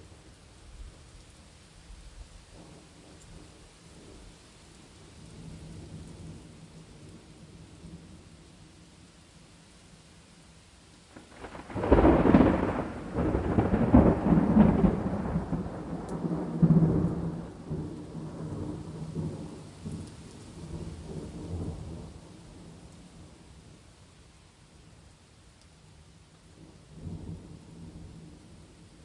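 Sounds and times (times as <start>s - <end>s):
steady rain hissing: 0.0s - 29.0s
thunder crackling and rumbling: 11.1s - 23.4s, 26.5s - 29.0s.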